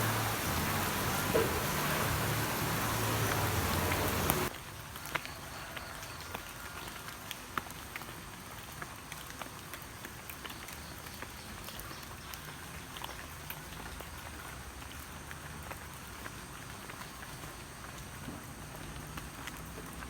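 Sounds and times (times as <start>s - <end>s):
light rain hissing: 0.0s - 4.5s
raindrops ticking on hard surface: 0.0s - 20.0s.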